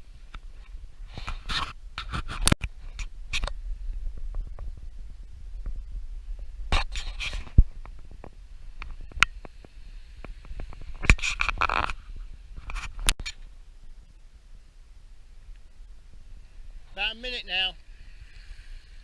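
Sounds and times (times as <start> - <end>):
microphone handling rustling: 0.2 - 13.5
low rumble: 2.7 - 9.3.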